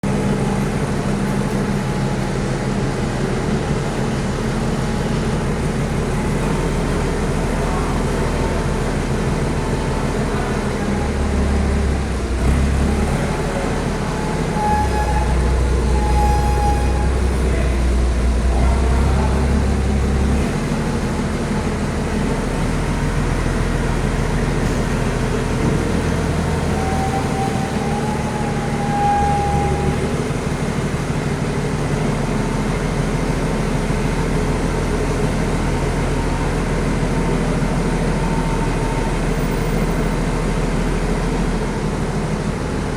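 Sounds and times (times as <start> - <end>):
heavy vehicle engine rumbling: 0.0 - 42.9
thin high tone: 13.5 - 20.2.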